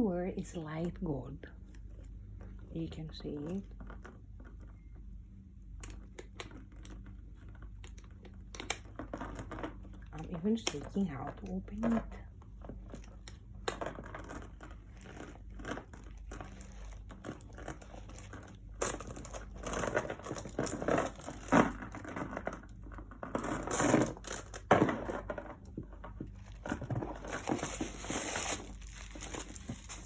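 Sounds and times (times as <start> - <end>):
wrapping crinkling and rustling: 14.8 - 21.5, 26.3 - 30.0.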